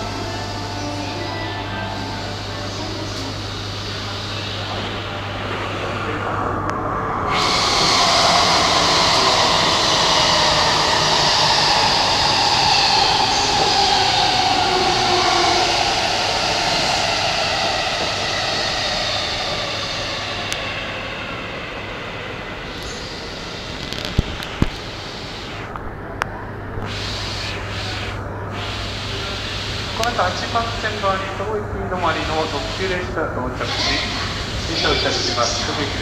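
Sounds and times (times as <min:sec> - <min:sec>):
electric train motor whine: 0:00.0 - 0:26.2.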